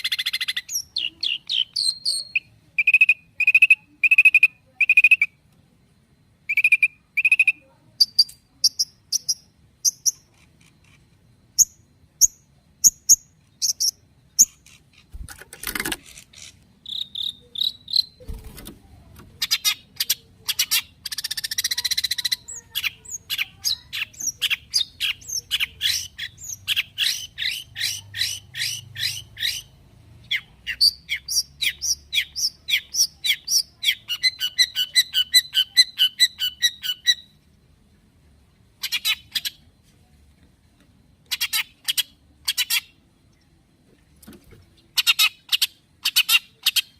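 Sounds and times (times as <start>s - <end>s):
bird singing: 0.0s - 5.4s, 6.4s - 37.4s, 38.8s - 39.7s.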